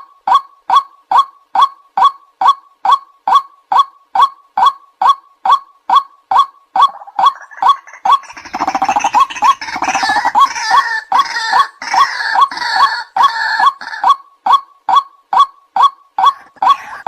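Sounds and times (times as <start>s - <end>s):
waterhen sharp calls: 6.3s - 14.2s, 16.2s - 17.0s
harsh rapid chattering chorus: 6.8s - 14.2s.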